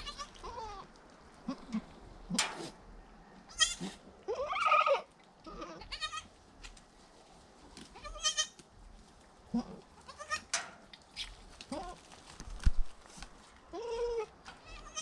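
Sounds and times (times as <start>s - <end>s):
goats bleating: 3.5s - 6.3s, 13.7s - 15.0s.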